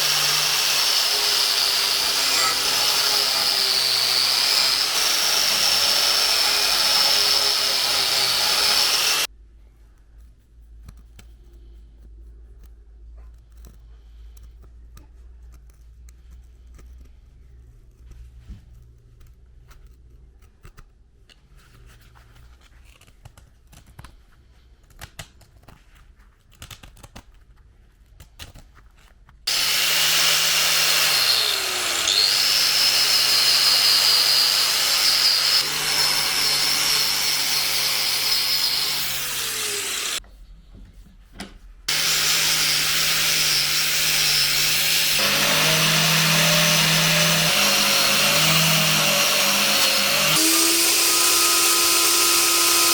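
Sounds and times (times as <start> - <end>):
electric power tool whining: 0.0 - 9.3, 29.5 - 40.2, 41.9 - 52.9.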